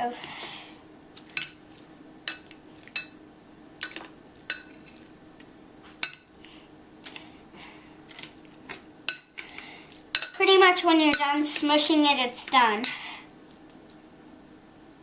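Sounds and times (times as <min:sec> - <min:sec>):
utensil clinking against bowl: 0:03.8 - 0:05.0.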